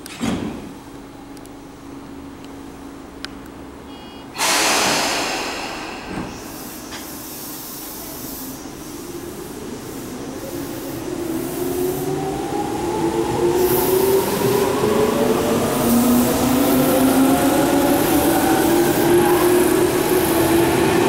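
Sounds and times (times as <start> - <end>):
loud hiss of air: 4.4 - 12.2, 13.6 - 14.8
thump: 4.5 - 7.1.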